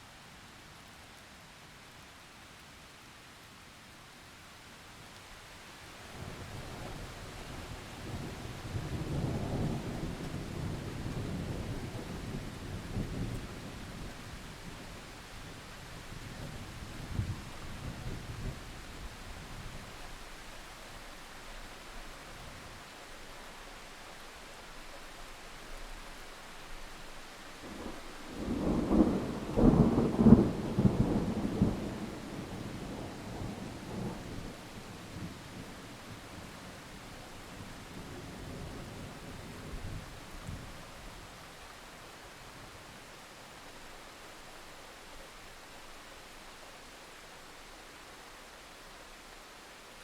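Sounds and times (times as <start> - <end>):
steady rain: 0.0 - 50.0
thunder rumbling: 27.8 - 36.2.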